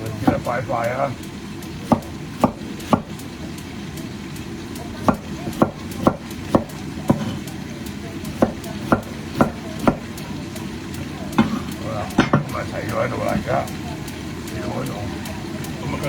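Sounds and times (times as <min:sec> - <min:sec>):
chicken sizzling in a pan: 0:00.0 - 0:16.0
knife chopping on cutting board: 0:01.8 - 0:03.2, 0:05.0 - 0:07.5, 0:08.3 - 0:10.1.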